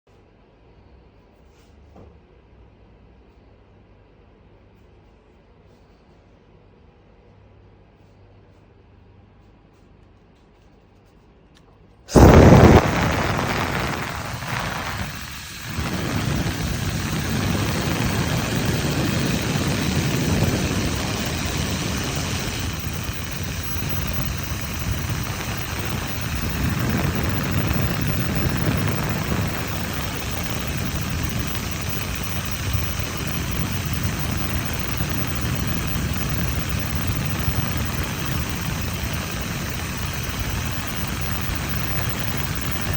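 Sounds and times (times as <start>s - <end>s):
hair dryer running: 12.1s - 42.9s.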